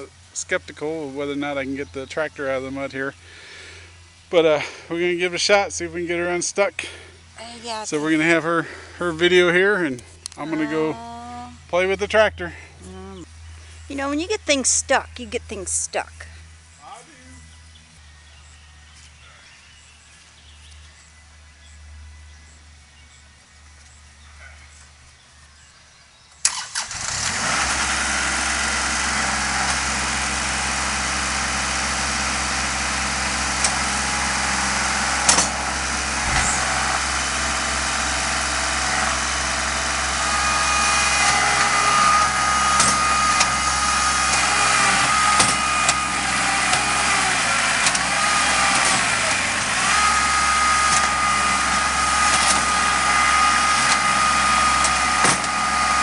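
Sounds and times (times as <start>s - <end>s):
tractor diesel engine running: 0.0s - 25.7s, 26.4s - 56.0s
high steady whine: 28.8s - 46.3s.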